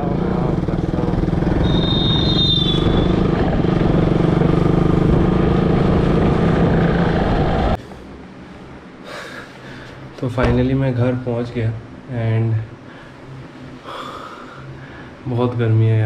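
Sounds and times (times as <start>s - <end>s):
motorcycle engine running: 0.0s - 7.8s
road and wind noise: 0.0s - 7.8s
high whistle-like tone: 1.5s - 3.3s.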